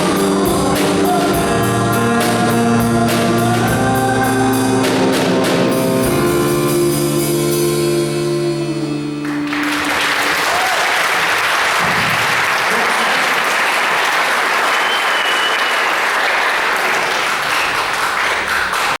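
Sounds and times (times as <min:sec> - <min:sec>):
audience applauding: 0:09.2 - 0:19.0
person whistling: 0:14.8 - 0:15.9.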